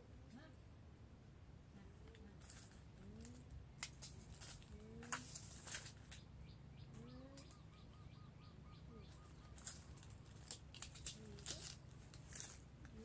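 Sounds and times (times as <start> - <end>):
faint bird calls: 4.5 - 13.0.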